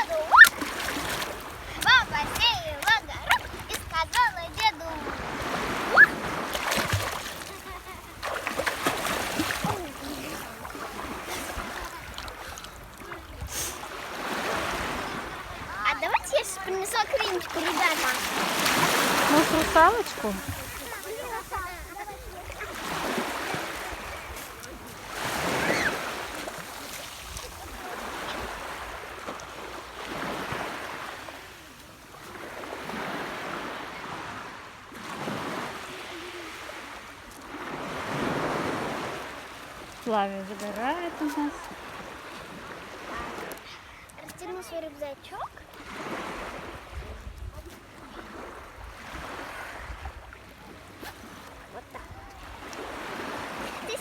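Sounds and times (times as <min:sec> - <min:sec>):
water splash: 0:00.0 - 0:31.3
sea water sloshing and lapping: 0:00.0 - 0:54.0
small waves washing onto shore: 0:00.0 - 0:54.0.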